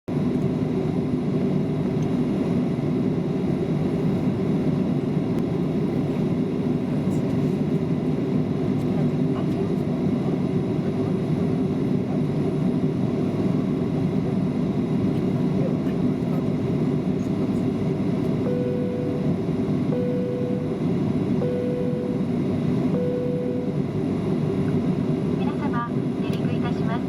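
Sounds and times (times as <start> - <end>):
jet engines rumbling in cabin: 0.1 - 27.0
faint high whine: 15.6 - 27.0.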